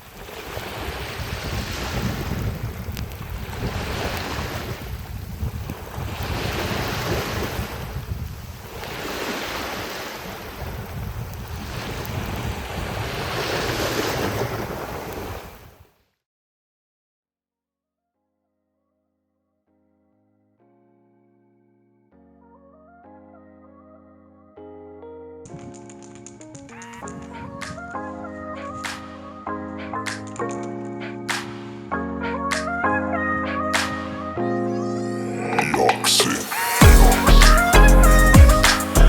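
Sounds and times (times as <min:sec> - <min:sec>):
sea waves washing ashore: 0:00.0 - 0:15.7, 0:35.2 - 0:39.0
wind buffeting microphone: 0:00.2 - 0:09.1, 0:09.8 - 0:15.4.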